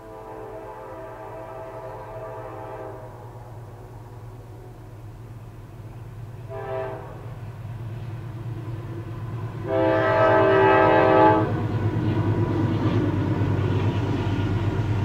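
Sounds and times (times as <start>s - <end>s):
locomotive air horn blast: 0.0s - 5.0s, 6.4s - 7.4s, 9.6s - 11.6s
diesel locomotives rumbling past: 0.0s - 15.0s.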